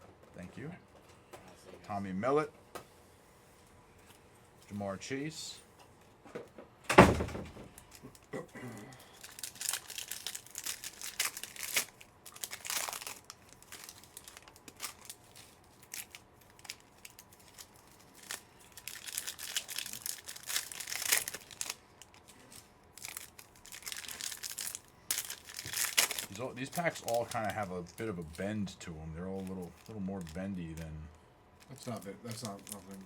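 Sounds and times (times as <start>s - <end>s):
card wrappers tearing and crinkling: 7.7s - 33.0s.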